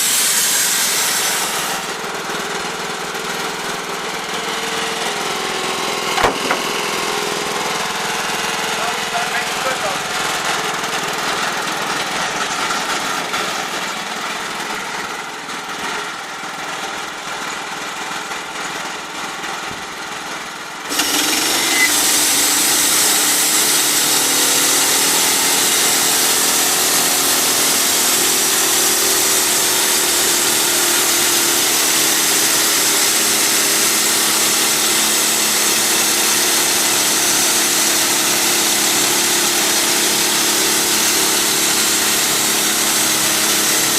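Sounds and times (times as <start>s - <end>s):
band sawmill running: 0.0s - 43.9s
band blade hissing through log: 20.9s - 23.6s.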